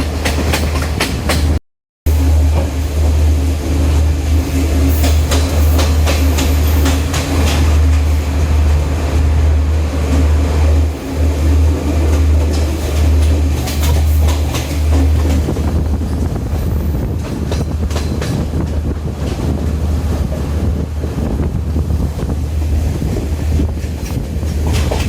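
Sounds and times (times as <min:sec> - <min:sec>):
wheel clacks over rail joints: 0:00.0 - 0:01.6, 0:04.4 - 0:08.2, 0:12.1 - 0:19.6, 0:23.7 - 0:25.0
train rumbling: 0:00.0 - 0:25.0.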